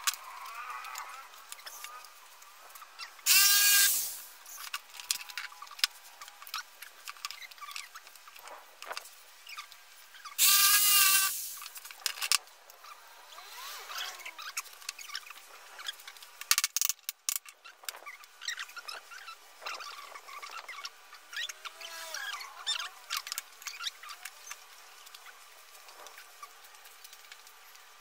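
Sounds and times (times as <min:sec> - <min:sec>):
clamps clicking and squeaking: 0:00.0 - 0:27.9
power tool motor whirring: 0:03.3 - 0:04.3, 0:10.4 - 0:11.7, 0:12.8 - 0:15.3.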